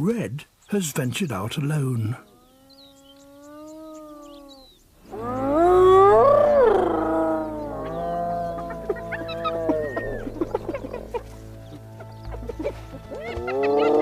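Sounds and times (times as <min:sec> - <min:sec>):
hyenas whooping: 0:02.5 - 0:11.2, 0:13.2 - 0:14.0
low music drone: 0:05.3 - 0:14.0.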